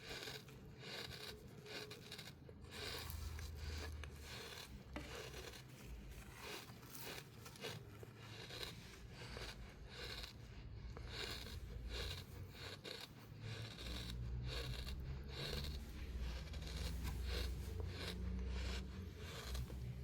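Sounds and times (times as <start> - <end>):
tool scraping compacted sand: 11.0 - 20.0.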